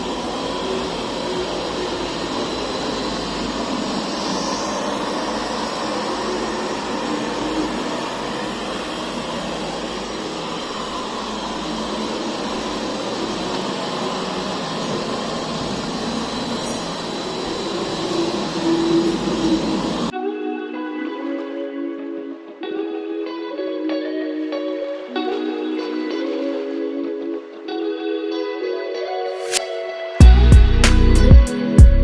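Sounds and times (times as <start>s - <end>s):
robot vacuum whirring: 0.0s - 20.1s.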